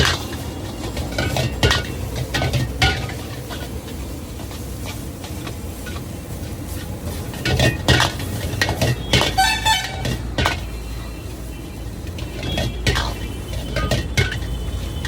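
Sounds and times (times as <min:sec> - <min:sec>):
metal spatula scraping a wok: 0:00.0 - 0:15.0
vehicle horn honking: 0:09.0 - 0:15.0.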